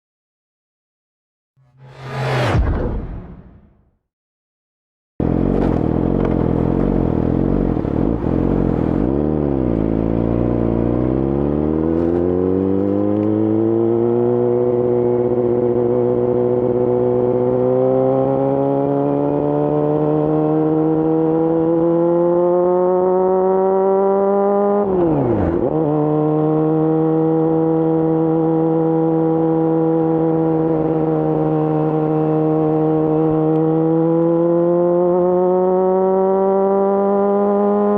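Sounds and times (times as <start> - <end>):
motorcycle engine running: 5.2 - 12.2.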